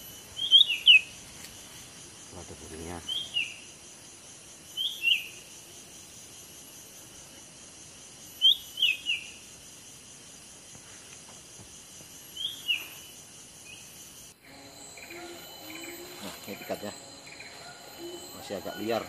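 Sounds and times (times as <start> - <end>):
high insect buzz: 0.0 - 19.0
bird chirping: 0.3 - 1.1, 14.5 - 19.0.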